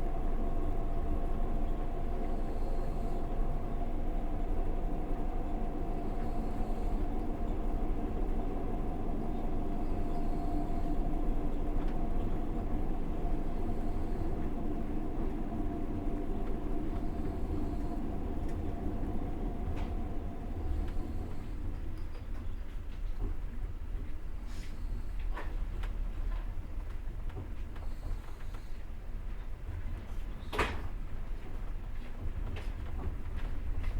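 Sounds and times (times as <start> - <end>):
faint steady hum: 0.0 - 22.5
train rumbling on rails: 0.0 - 33.9.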